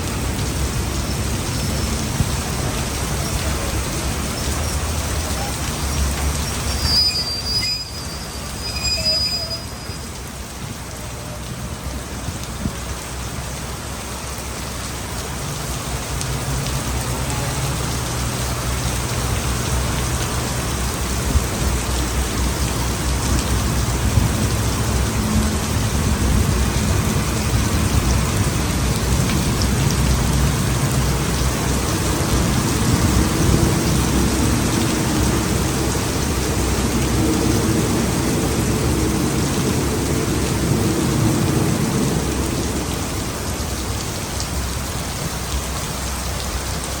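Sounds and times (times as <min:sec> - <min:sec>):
heavy rain: 0:00.0 - 0:47.0.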